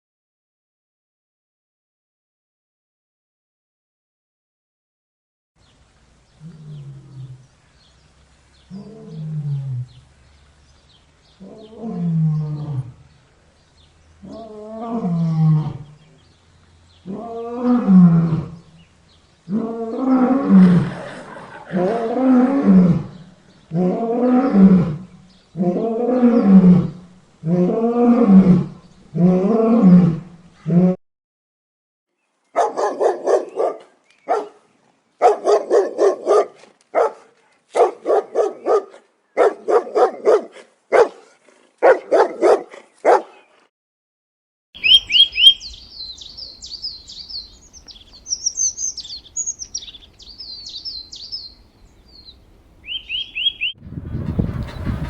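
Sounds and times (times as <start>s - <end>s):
large animal roaring: 6.4s - 7.5s, 8.7s - 10.0s, 11.4s - 13.1s, 14.2s - 16.1s, 17.0s - 18.7s, 19.5s - 31.0s.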